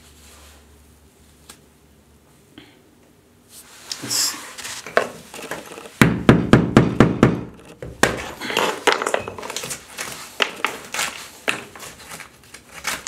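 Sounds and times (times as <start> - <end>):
scraping of tile and mortar: 3.6 - 6.0, 7.6 - 13.0
tile being knocked off wall: 4.9 - 12.1.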